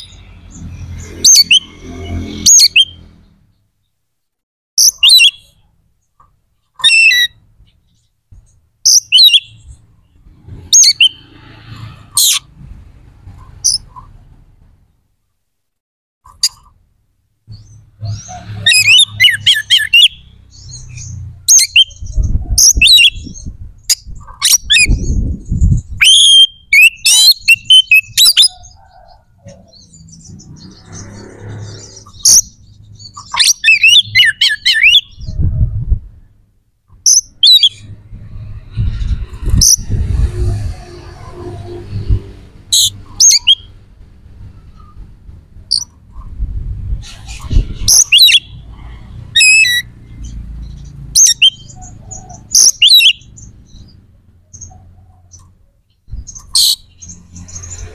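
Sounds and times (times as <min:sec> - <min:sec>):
bird singing: 0:04.8 - 0:11.3, 0:17.5 - 0:35.5, 0:42.7 - 0:43.8, 0:44.4 - 0:46.0, 0:47.6 - 0:48.7, 0:49.4 - 0:57.9.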